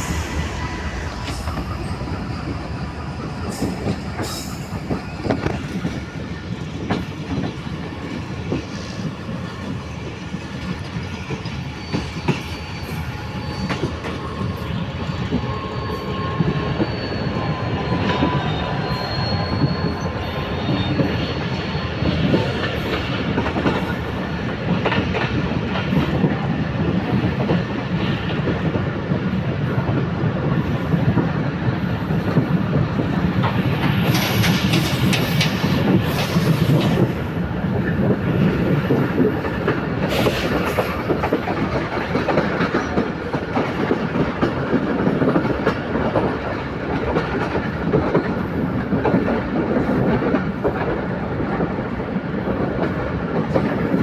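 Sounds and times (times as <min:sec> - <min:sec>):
train wheels clattering: 0:00.0 - 0:15.5, 0:32.1 - 0:54.0.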